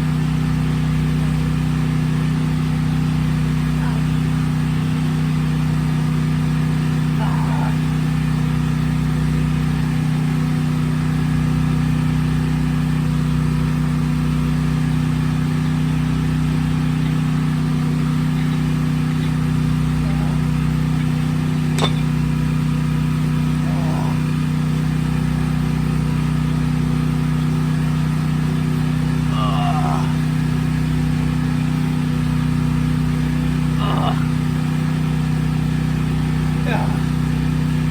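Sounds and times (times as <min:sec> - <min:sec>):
low motor hum: 0:00.0 - 0:37.9.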